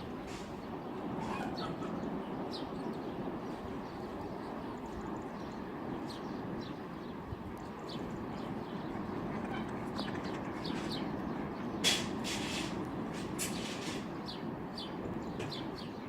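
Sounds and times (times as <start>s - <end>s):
rain hiss: 0.0s - 1.2s, 11.8s - 15.1s
birds chirping: 0.0s - 16.0s.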